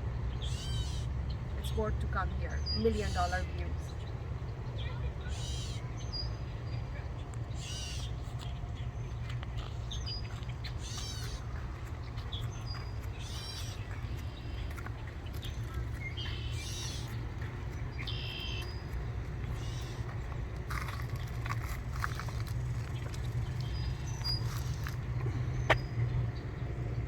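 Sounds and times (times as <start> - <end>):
steady low rumble: 0.0 - 27.0
birds chirping and whistling: 0.3 - 1.4, 7.5 - 20.4, 22.0 - 26.7.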